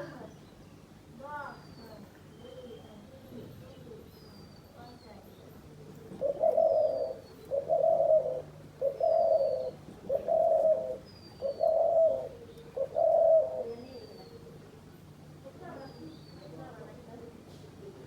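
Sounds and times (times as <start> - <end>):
dove cooing: 6.0 - 14.6.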